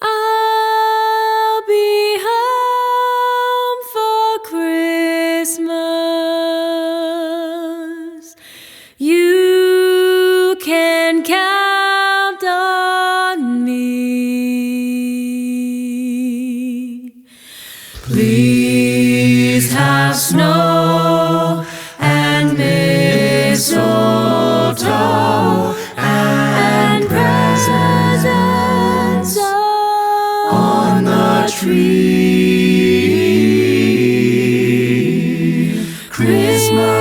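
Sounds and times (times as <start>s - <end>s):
high voice singing a cappella: 0.0s - 8.4s, 9.0s - 17.3s, 18.0s - 37.0s
lower voices singing harmony: 18.0s - 37.0s.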